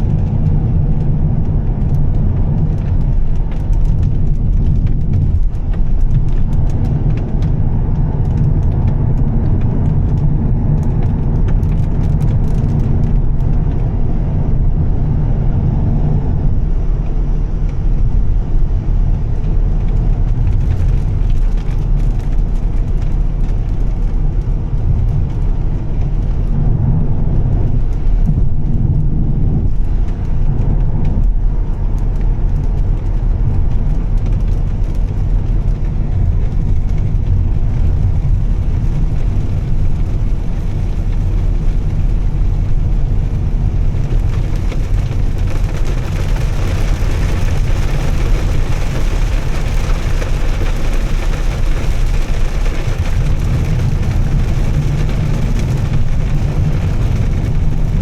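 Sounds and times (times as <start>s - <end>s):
car engine low drone: 0.0s - 58.0s
road and tyre noise: 0.0s - 58.0s.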